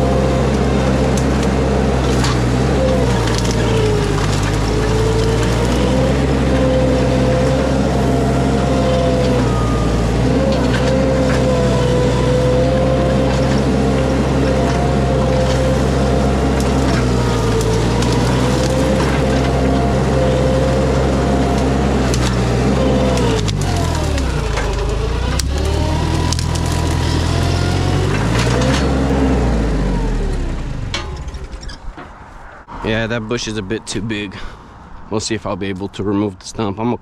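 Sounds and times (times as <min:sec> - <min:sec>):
hydraulic whine: 0:00.0 - 0:33.2
skid steer engine running: 0:00.0 - 0:34.6
woody cracks: 0:02.1 - 0:06.1, 0:23.1 - 0:29.1.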